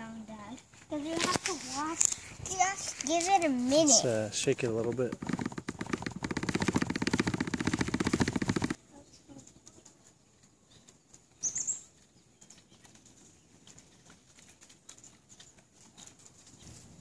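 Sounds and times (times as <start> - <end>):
bird chirp: 8.9 - 14.3, 15.0 - 17.0.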